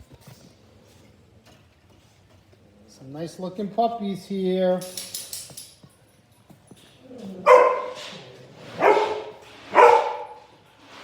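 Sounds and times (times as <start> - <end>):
puppies barking: 7.4 - 8.0, 8.7 - 10.5.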